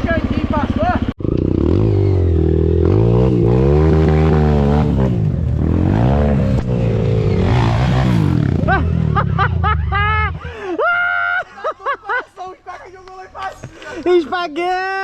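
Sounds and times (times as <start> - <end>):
dirt bike engine revving: 0.0 - 10.5.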